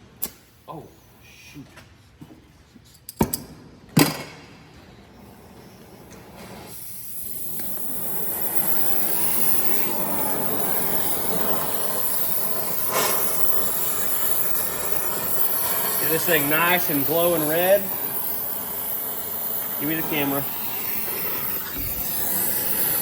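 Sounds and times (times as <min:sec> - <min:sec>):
gas torch lighting pops: 0:00.2 - 0:00.5, 0:06.1 - 0:23.0
torch flame hissing: 0:05.2 - 0:23.0.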